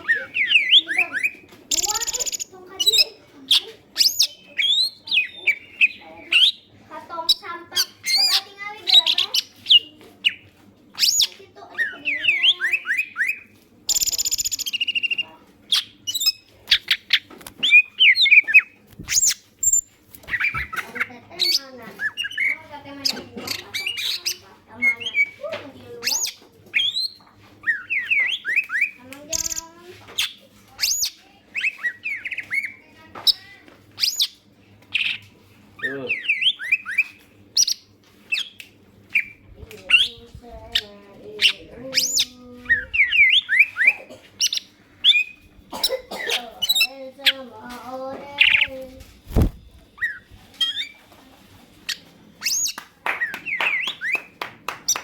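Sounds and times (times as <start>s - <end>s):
bird warbling: 35.8s - 47.5s.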